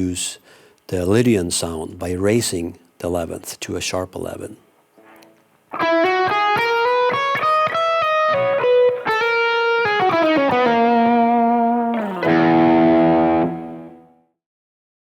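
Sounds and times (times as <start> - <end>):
electric guitar arpeggio notes: 5.7 - 14.2
electric guitar chord ringing: 5.7 - 14.2.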